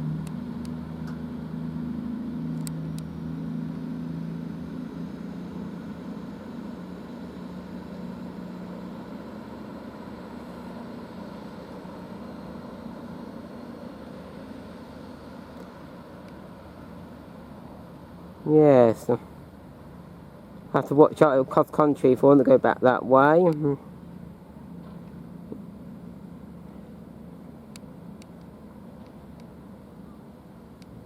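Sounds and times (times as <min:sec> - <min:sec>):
diesel train engine drone: 0:00.0 - 0:31.0.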